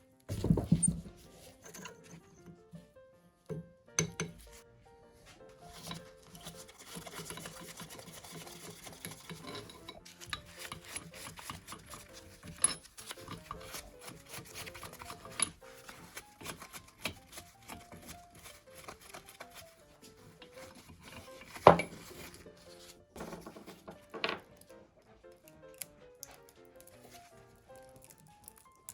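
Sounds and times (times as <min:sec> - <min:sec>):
soft background music: 0:00.0 - 0:28.9
scraping on metal parts: 0:05.7 - 0:19.4, 0:20.4 - 0:24.3.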